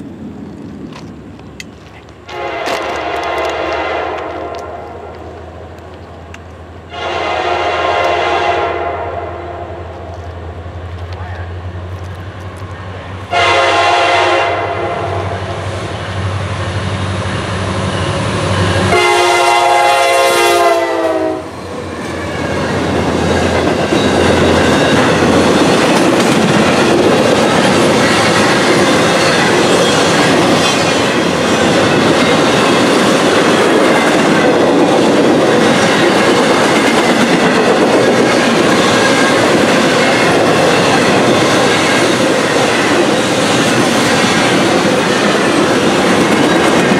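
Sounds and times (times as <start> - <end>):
train cars rolling clickety-clack: 0.0 - 8.4, 9.9 - 46.9
locomotive air horn blasts: 2.3 - 5.0, 6.9 - 10.0, 13.3 - 15.6, 18.9 - 21.5
diesel engines droning: 9.1 - 20.3.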